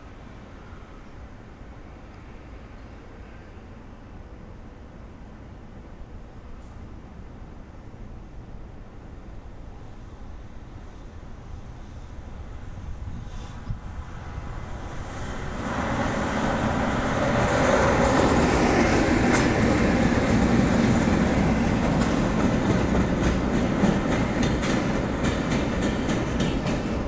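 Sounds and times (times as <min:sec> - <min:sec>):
locomotives rumbling past: 0:14.4 - 0:27.0
wheels clicking over rail joints: 0:17.8 - 0:27.0.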